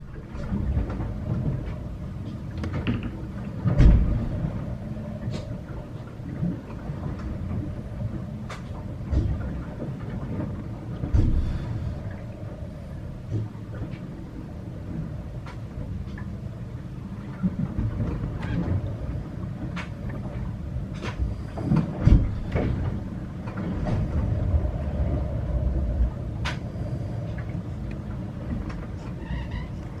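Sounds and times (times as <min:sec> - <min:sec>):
low rumble of boat and water: 0:00.0 - 0:30.0
heavy thump: 0:03.8 - 0:04.2.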